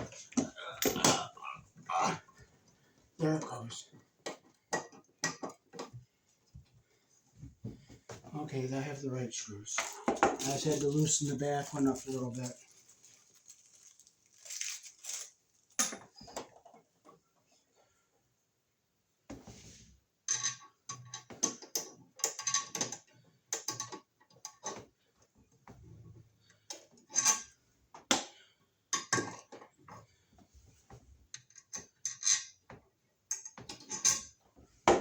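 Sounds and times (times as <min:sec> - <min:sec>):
small metal and plastic parts rattling: 0:09.8 - 0:16.8, 0:20.3 - 0:24.8, 0:31.3 - 0:32.7.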